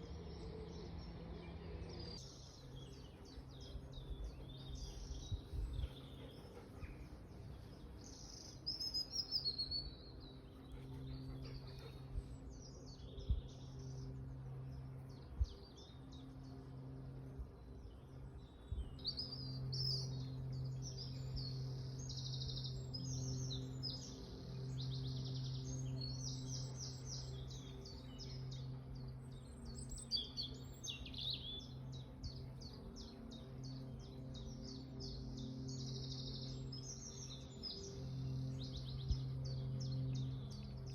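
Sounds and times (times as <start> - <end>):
steady low hum: 0.0 - 40.9
wild birds singing: 0.0 - 40.9.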